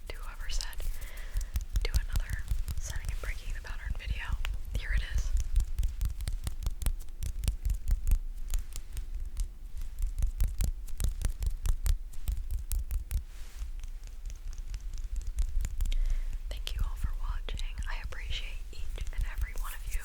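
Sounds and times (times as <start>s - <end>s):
fingertips tapping sticky surface: 0.2s - 16.9s, 19.0s - 20.0s.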